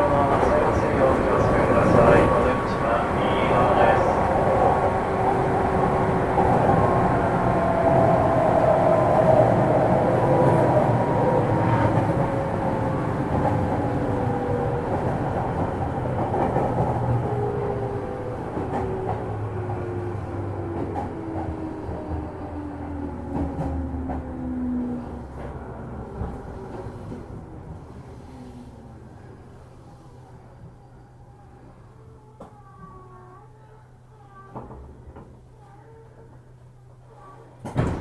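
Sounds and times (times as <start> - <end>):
rail clicks: 0.0 - 28.0.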